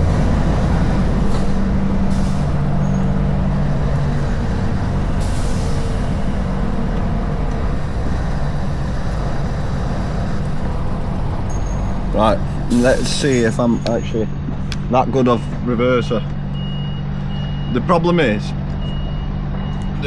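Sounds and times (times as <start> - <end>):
diesel truck engine running: 0.0 - 20.0
compressed air hisses: 5.2 - 6.1, 12.7 - 13.4.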